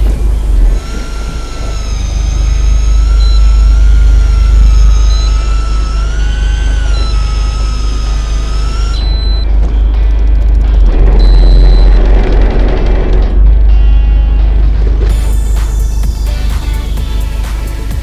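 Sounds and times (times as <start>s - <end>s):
electric fishing reel whining: 0.0s - 17.2s
boat engine rumble: 0.0s - 18.0s
short high beeps: 4.6s - 10.2s.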